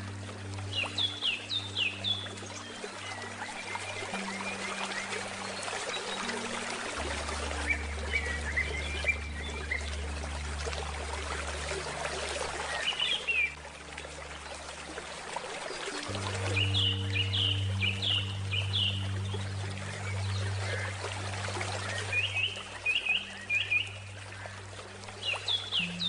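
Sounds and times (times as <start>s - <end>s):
river water flowing: 0.0s - 26.0s
soft low musical tones: 0.0s - 26.0s
small birds chirping: 15.7s - 21.1s.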